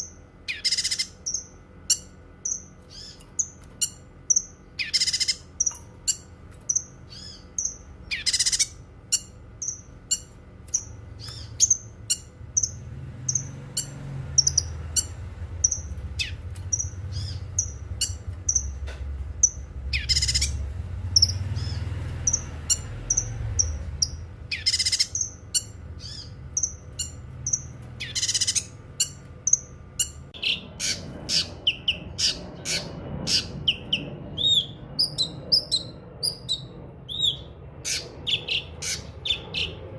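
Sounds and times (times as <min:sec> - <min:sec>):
bird chirping: 0:00.0 - 0:39.9
harsh bird calls: 0:00.0 - 0:39.9
low rumble: 0:25.3 - 0:39.9.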